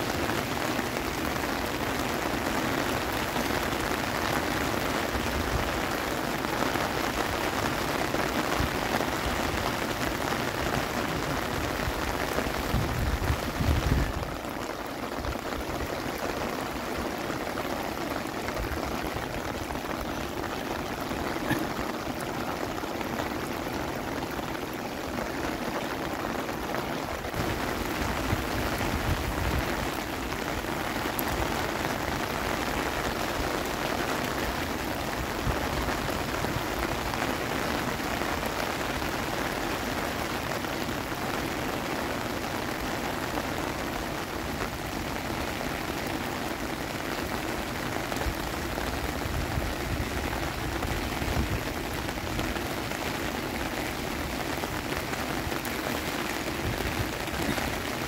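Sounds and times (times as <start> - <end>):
heavy rain on concrete: 0.0 - 58.0.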